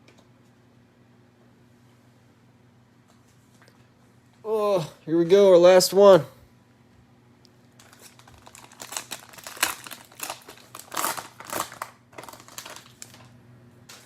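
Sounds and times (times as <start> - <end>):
cellophane wrapper crinkling: 7.7 - 14.0.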